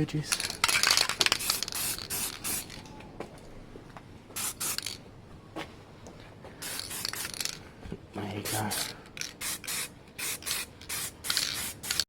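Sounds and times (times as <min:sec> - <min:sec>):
spray paint can hissing: 0:00.7 - 0:02.8, 0:04.4 - 0:05.0, 0:06.6 - 0:07.6, 0:08.5 - 0:12.0.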